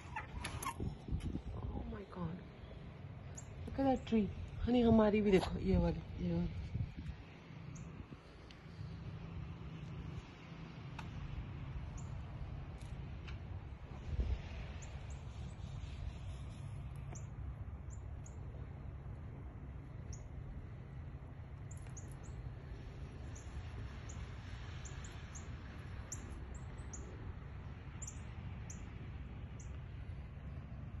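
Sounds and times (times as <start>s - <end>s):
small birds chirping: 1.6s - 4.7s, 11.9s - 12.2s, 21.6s - 27.3s, 27.9s - 29.8s.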